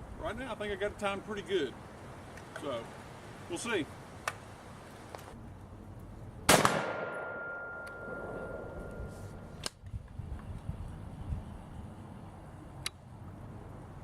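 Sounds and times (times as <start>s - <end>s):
rifle shot with echo: 6.5s - 8.8s
faint steady ring: 7.2s - 9.6s.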